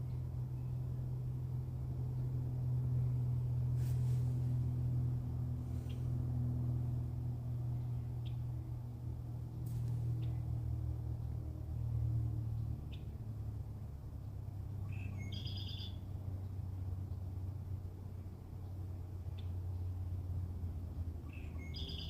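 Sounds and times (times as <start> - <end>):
steady low rumble: 0.0 - 22.0
birds chirping: 14.8 - 16.0, 21.2 - 22.0.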